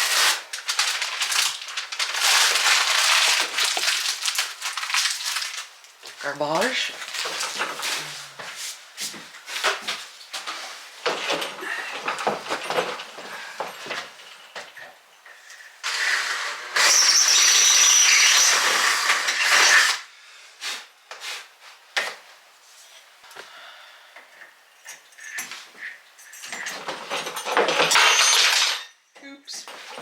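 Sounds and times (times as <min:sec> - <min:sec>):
power drill running: 0:15.8 - 0:20.0.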